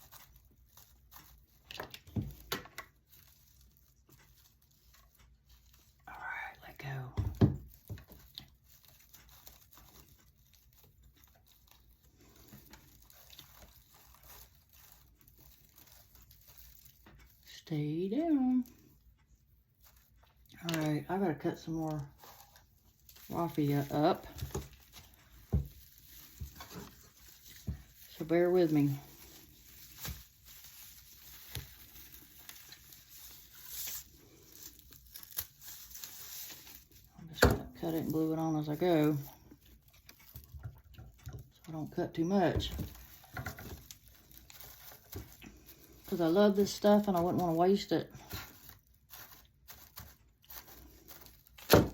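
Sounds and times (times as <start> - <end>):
raffia rustling and ticking: 0.0 - 51.9.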